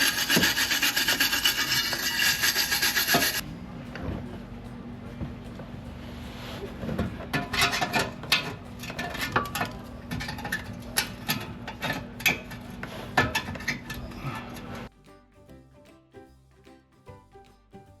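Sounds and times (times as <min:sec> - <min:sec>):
brush scrubbing: 0:00.0 - 0:03.4
steady low hum: 0:00.1 - 0:14.9.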